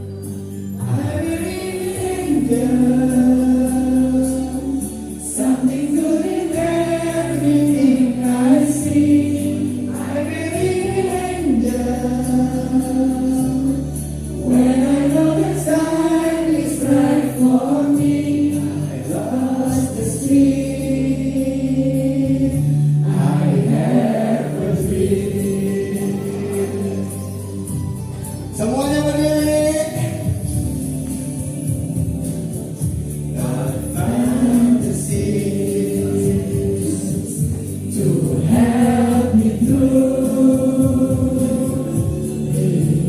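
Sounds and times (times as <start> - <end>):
choir singing: 0.8 - 27.4, 32.4 - 43.0
instrumental accompaniment: 22.1 - 43.0.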